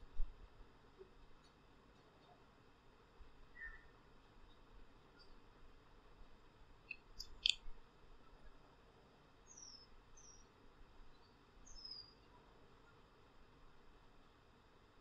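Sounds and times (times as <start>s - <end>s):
small bird chirping: 3.5s - 3.9s, 6.9s - 7.7s, 9.4s - 10.5s, 11.1s - 12.3s.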